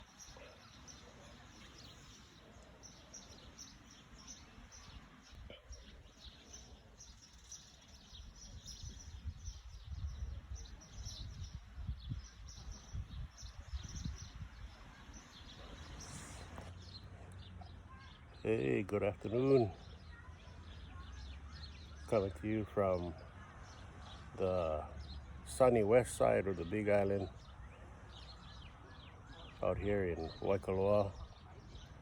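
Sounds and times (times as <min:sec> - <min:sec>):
small birds chirping: 0:00.0 - 0:32.0
wind rumble on microphone: 0:08.1 - 0:16.6.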